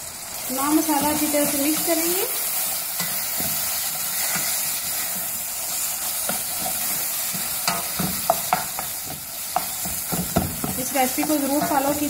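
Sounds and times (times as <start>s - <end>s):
masala sizzling in oil: 0.0s - 12.0s
spatula stirring and scraping: 0.8s - 12.0s
spatula knocking against pot: 7.7s - 10.9s.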